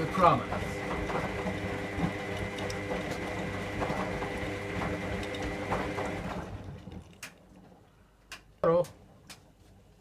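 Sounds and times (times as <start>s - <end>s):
washing machine running: 0.0s - 7.9s.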